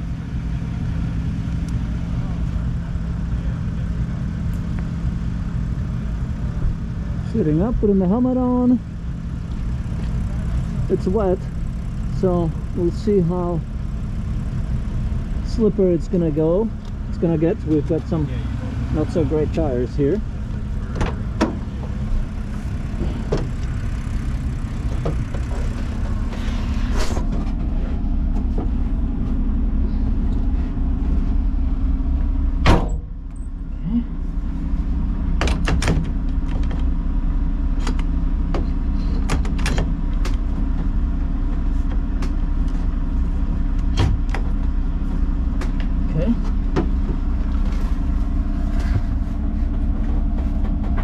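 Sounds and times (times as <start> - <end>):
race car engine idling: 0.0 - 51.0
loud clunk: 32.6 - 33.4.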